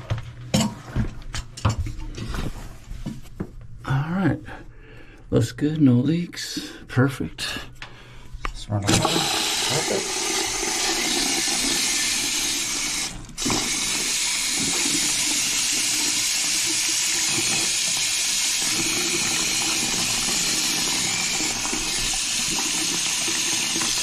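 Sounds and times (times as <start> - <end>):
faucet water running into basin: 8.9 - 24.0.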